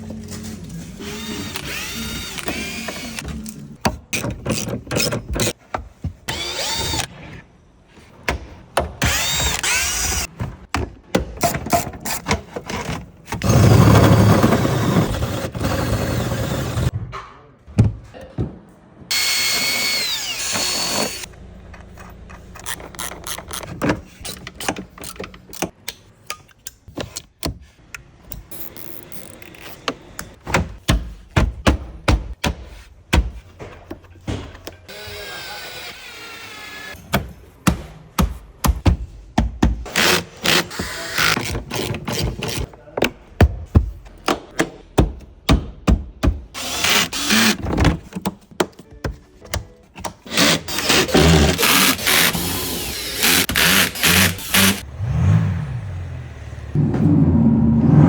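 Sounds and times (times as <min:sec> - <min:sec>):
power tool running: 0:19.1 - 0:21.3, 0:50.3 - 0:54.8.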